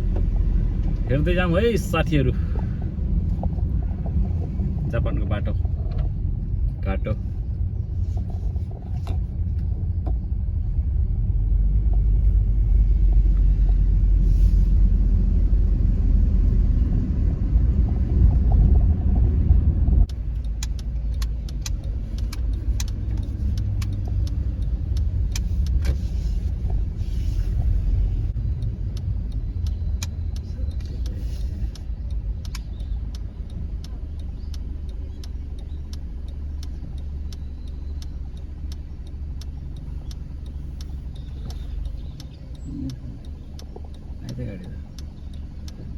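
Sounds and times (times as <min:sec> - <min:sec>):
light clicks and ticks: 0:00.0 - 0:10.2, 0:20.0 - 0:45.9
car road and engine rumble: 0:00.0 - 0:45.9.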